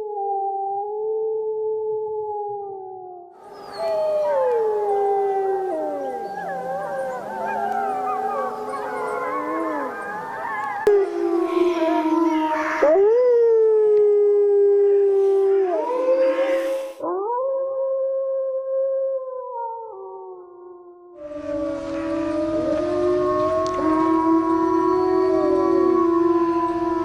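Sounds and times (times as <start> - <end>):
wolves howling: 3.4 - 17.4, 21.2 - 27.0.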